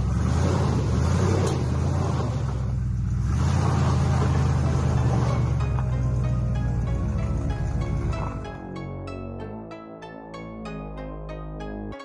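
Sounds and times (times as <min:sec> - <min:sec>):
truck engine running: 0:00.0 - 0:09.0.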